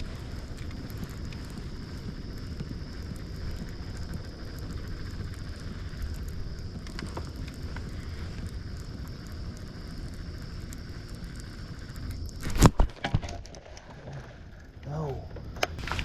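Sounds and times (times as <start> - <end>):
wind buffeting microphone: 0.0 - 12.8
faint high whine: 0.0 - 16.0.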